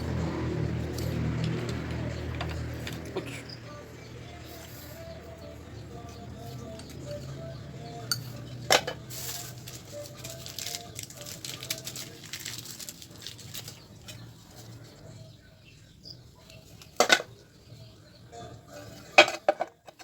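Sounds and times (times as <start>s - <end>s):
rustling: 9.1s - 15.2s.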